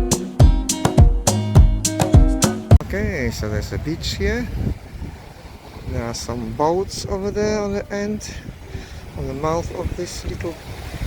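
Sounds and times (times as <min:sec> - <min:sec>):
upbeat pop music: 0:00.0 - 0:02.8.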